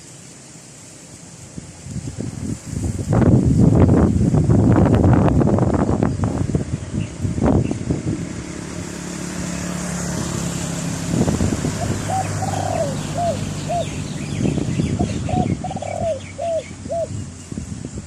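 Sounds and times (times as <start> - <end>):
wind noise: 1.6 - 18.0
dove cooing: 11.7 - 14.2, 14.8 - 17.2.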